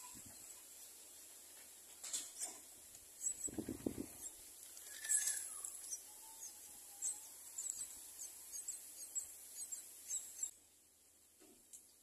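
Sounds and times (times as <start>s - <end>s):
birds chirping: 2.1s - 10.6s.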